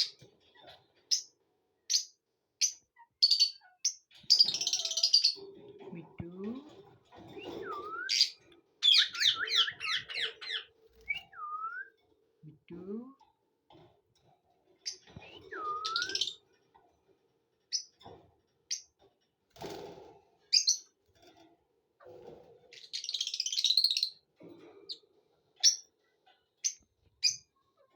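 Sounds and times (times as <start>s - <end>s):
lovebirds chirping: 1.9s - 5.5s, 7.4s - 11.8s, 14.8s - 16.4s, 22.7s - 24.2s
swooping bird whistles: 15.2s - 16.4s.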